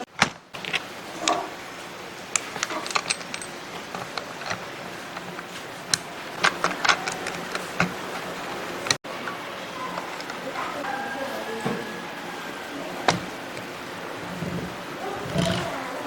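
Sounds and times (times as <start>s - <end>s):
metal parts clicking and clinking: 0.1s - 9.0s, 9.9s - 10.4s, 13.1s - 15.7s.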